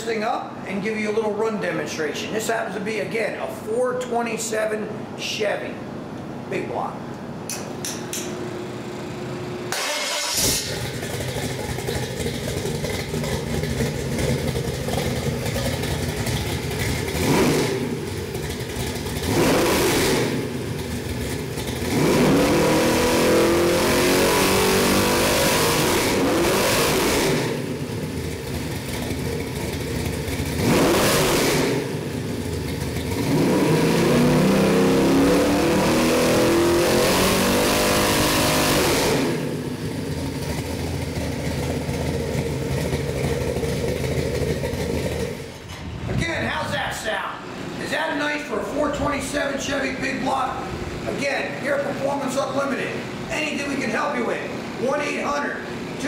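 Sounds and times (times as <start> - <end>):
engine starting and revving: 9.7 - 46.3.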